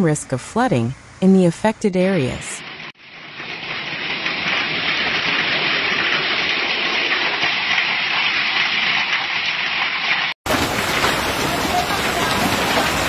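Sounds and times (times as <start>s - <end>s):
different rain sound: 2.6s - 13.0s
heavy rain downpour: 10.5s - 13.0s.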